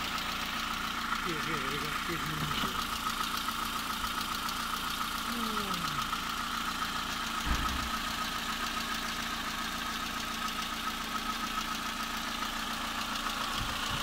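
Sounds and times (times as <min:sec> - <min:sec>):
car engine idling: 0:00.0 - 0:14.0
low thump: 0:07.4 - 0:08.0.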